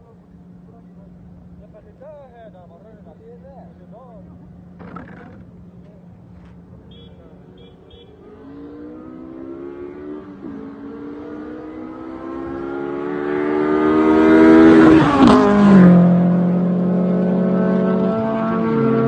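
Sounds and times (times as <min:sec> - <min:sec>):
car engine accelerating: 0:08.1 - 0:19.0.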